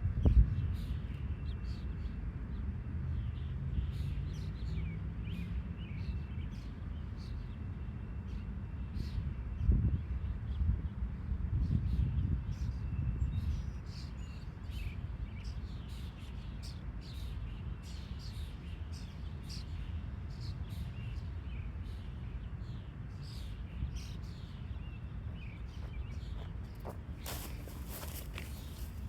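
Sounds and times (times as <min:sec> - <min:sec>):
small birds chirping: 0:11.9 - 0:29.0
steady low rumble: 0:23.3 - 0:29.0.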